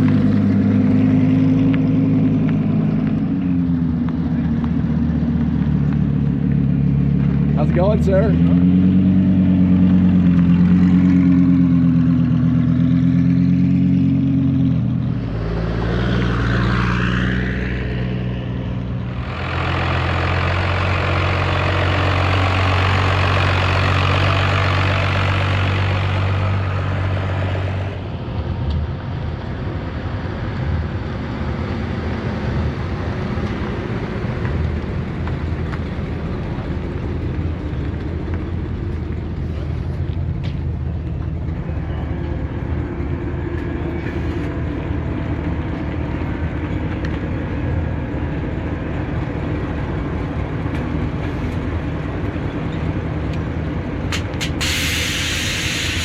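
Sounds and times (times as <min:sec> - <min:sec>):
engine rushing run: 0:00.0 - 0:56.0
engine whine: 0:00.0 - 0:56.0
vehicle engine idling: 0:18.5 - 0:56.0.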